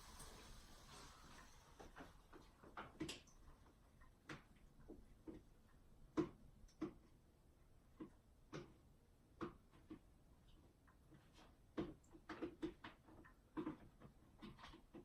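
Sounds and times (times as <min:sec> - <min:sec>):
faint clicks and taps: 0:01.3 - 0:15.0.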